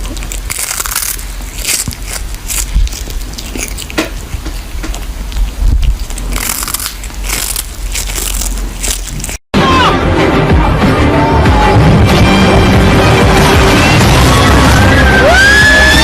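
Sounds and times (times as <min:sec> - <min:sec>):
crunching and crackling: 0:00.0 - 0:09.5.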